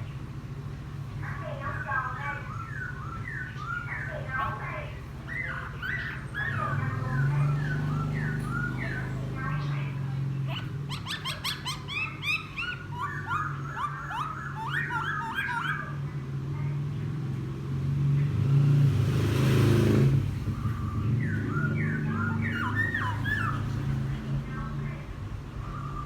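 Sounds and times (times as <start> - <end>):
bird chattering song: 1.3 - 16.2, 20.4 - 26.0.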